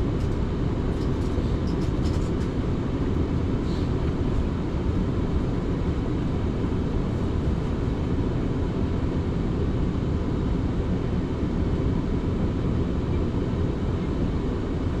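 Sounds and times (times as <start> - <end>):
passenger train rumbling: 0.0 - 10.0.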